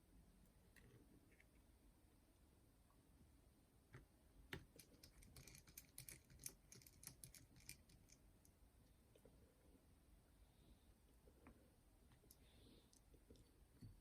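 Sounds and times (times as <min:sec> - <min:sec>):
small metal parts clicking: 0:04.8 - 0:08.2.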